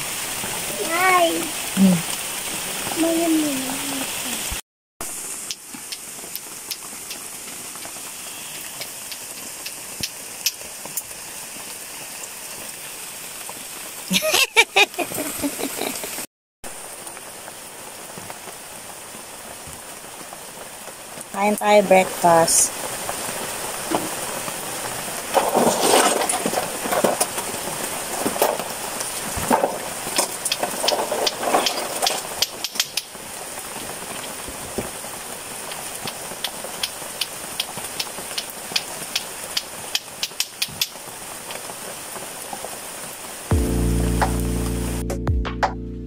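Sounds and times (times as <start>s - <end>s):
steady rain falling: 0.0s - 46.0s
sharp drip clicks: 5.4s - 7.9s, 8.8s - 10.6s, 30.4s - 33.1s, 36.4s - 41.0s.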